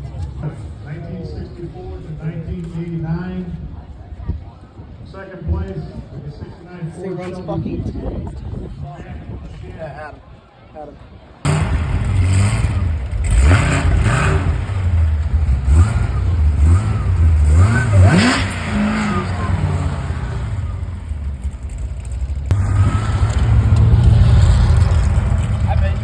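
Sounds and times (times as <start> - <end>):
car engine idling: 11.5 - 26.0
car engine revving: 11.5 - 26.0.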